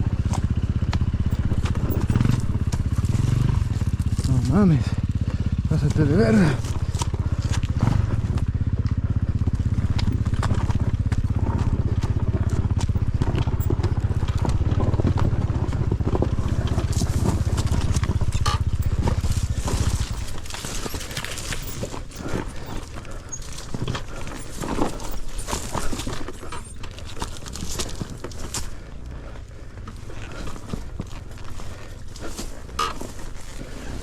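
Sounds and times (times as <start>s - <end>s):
dirt bike engine running: 0.0s - 34.0s
knocks and scuffs on rock: 5.8s - 28.9s.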